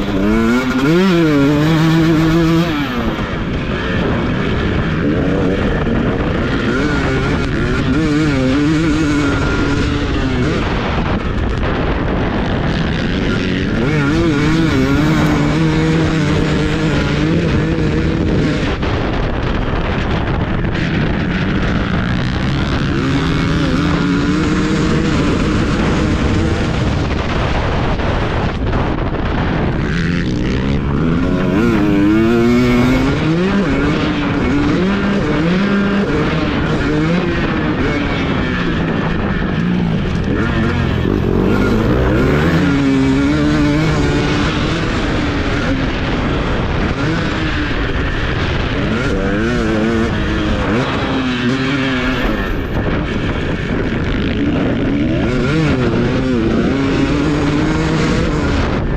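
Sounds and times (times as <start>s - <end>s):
motocross bike engine revving: 0.0s - 58.9s.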